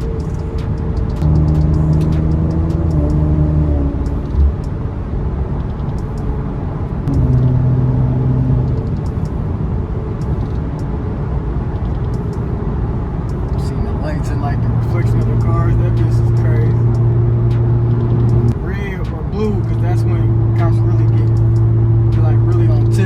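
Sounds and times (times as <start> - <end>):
car engine and road rumble: 0.0 - 23.0
low humming note: 6.0 - 11.0.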